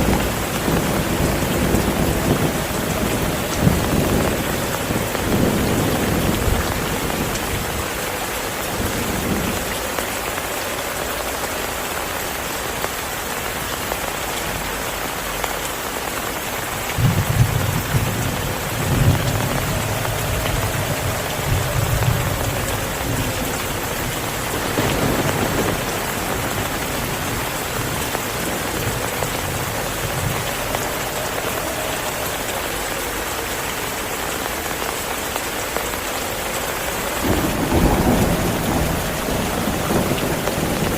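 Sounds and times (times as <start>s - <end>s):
thunder rumbling: 0.0s - 10.4s, 16.6s - 34.2s, 36.5s - 40.9s
heavy rain: 0.0s - 40.9s.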